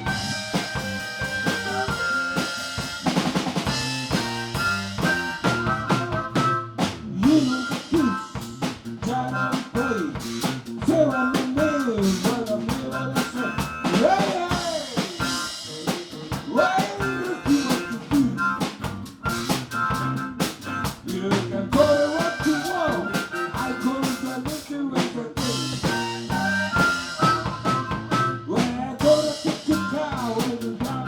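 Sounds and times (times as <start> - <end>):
lead instrument bending notes: 0.0 - 6.8
blues band playing: 0.0 - 31.0
drum kit beat with rimshots: 0.0 - 31.0.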